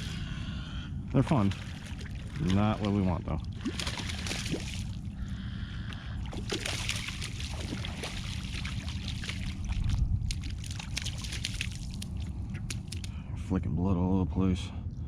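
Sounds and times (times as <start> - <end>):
low rumble: 0.0 - 15.0
water sloshing and dripping: 1.1 - 5.2, 5.8 - 13.2.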